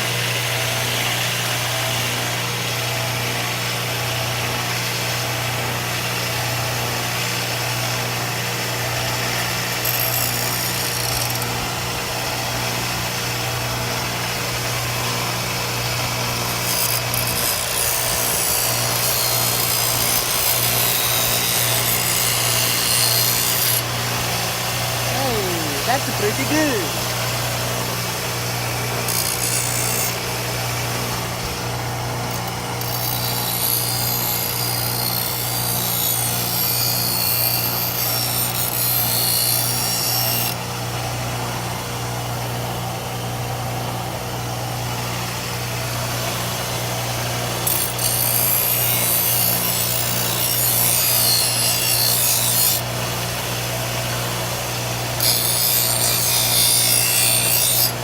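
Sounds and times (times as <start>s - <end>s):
blade grinding rasp: 9.7s - 11.5s, 16.5s - 24.2s, 32.3s - 40.5s, 47.7s - 52.9s, 55.0s - 58.0s.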